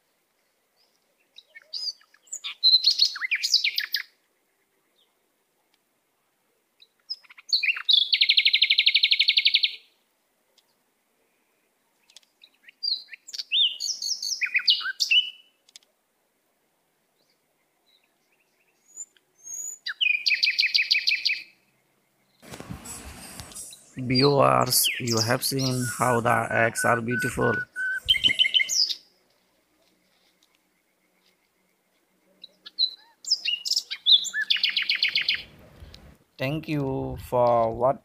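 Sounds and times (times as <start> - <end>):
cage birds chirping: 0.8 - 4.0, 12.0 - 15.4, 17.2 - 29.2, 32.4 - 36.2
buzzy bird trills: 22.5 - 29.0.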